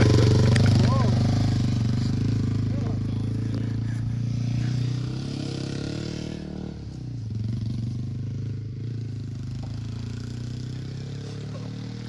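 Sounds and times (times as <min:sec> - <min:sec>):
truck engine humming: 0:00.0 - 0:07.3.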